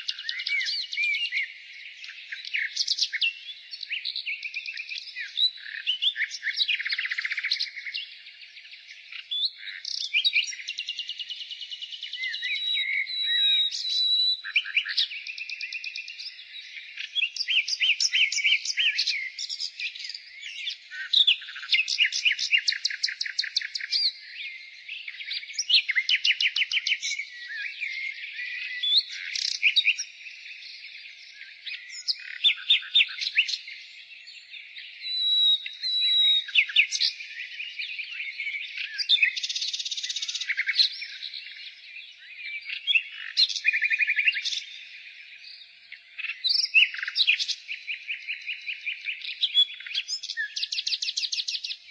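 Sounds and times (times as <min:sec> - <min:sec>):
nightingale singing: 0:00.0 - 0:51.9.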